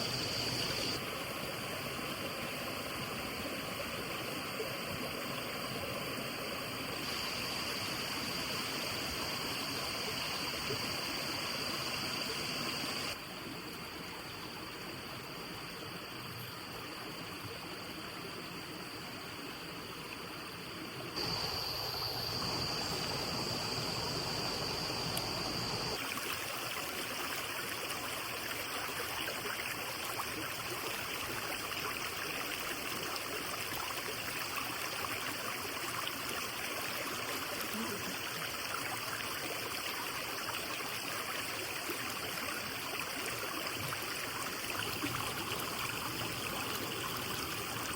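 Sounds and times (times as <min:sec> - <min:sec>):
stream rushing: 0:21.2 - 0:31.1.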